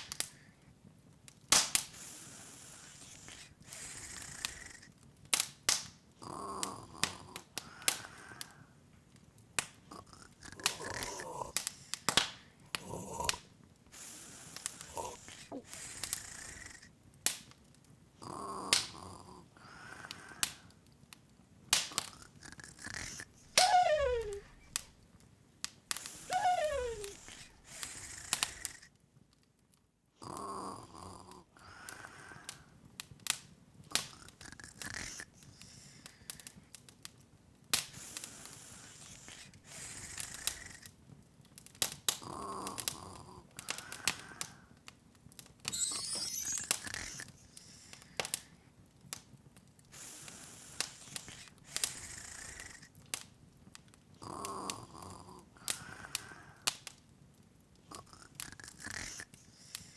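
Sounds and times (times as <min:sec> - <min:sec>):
wood fire crackling and popping: 0:00.0 - 0:29.8, 0:31.8 - 0:59.9
breathy snore-like sound: 0:02.0 - 0:04.9, 0:09.9 - 0:12.1, 0:12.7 - 0:13.4, 0:14.0 - 0:16.9, 0:18.2 - 0:20.7, 0:22.0 - 0:24.8, 0:26.0 - 0:28.9, 0:30.2 - 0:32.5, 0:38.2 - 0:40.9, 0:45.7 - 0:48.4, 0:50.1 - 0:52.9, 0:54.2 - 0:56.7, 0:57.9 - 0:59.9
high glittering rise: 0:45.7 - 0:47.1.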